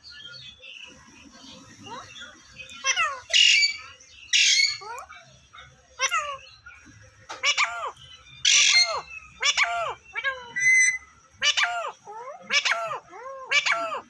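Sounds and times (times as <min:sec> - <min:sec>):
parrot calling: 0:01.8 - 0:05.2, 0:06.0 - 0:06.4, 0:07.3 - 0:14.0
parrot squawk: 0:02.8 - 0:05.1, 0:06.0 - 0:06.4, 0:07.4 - 0:14.0.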